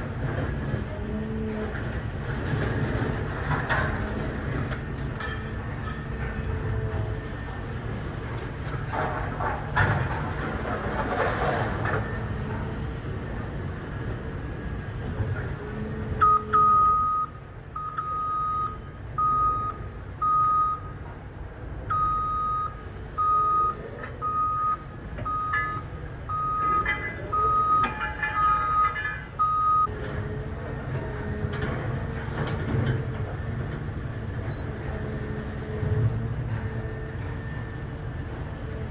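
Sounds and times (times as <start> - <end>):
heavy machinery rumbling: 0.0 - 38.9
metal clatter: 26.6 - 29.5.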